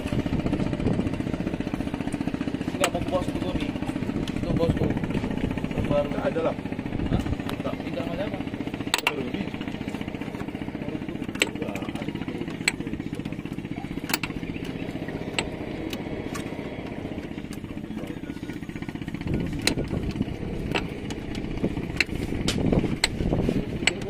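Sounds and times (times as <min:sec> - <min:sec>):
outboard engine idling: 0:00.0 - 0:24.0
sharp clicks: 0:11.3 - 0:13.4, 0:14.0 - 0:17.6, 0:19.4 - 0:24.0.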